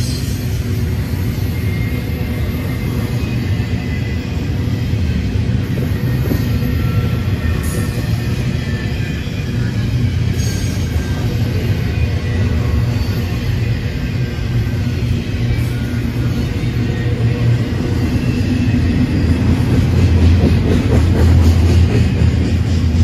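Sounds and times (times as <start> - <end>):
locomotive engine drone: 0.0 - 23.0
train rumble: 0.0 - 23.0.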